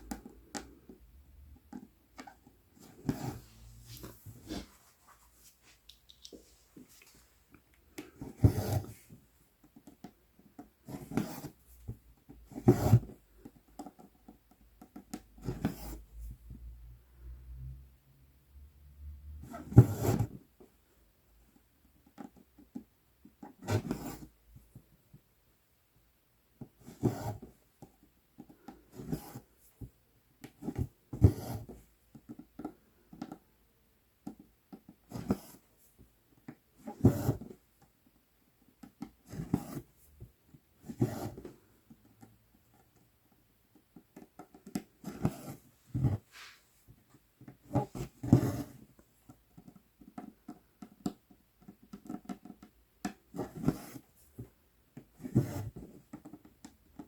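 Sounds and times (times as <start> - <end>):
faint small taps and rustles: 0.0 - 8.2, 8.8 - 10.9, 20.5 - 25.4, 27.4 - 40.7, 41.4 - 57.0.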